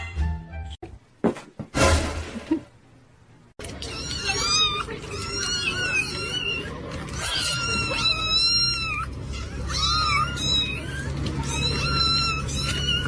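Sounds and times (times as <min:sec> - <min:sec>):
cats meowing: 0:03.6 - 0:13.0.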